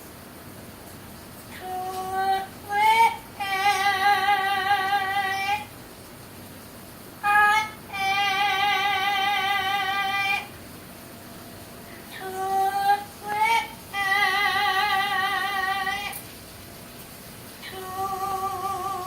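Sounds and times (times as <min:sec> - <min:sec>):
parrot singing: 0:07.2 - 0:10.5.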